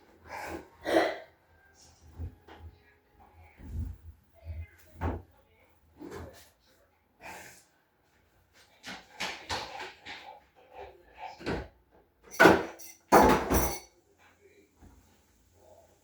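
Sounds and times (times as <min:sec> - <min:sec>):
household knocks and clatters: 0:11.4 - 0:13.9.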